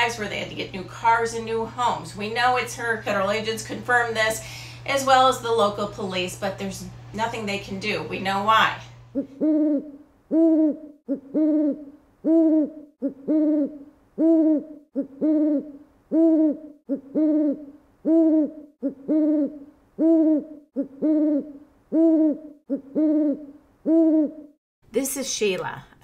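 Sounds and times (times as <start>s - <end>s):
owl-like hooting: 9.1s - 24.6s.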